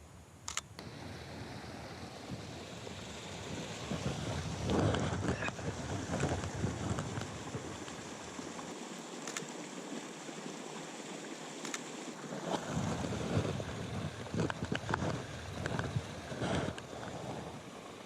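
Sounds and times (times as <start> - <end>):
sharp clicks: 0.4 - 0.8
wind noise on microphone: 0.8 - 8.5, 12.3 - 17.6.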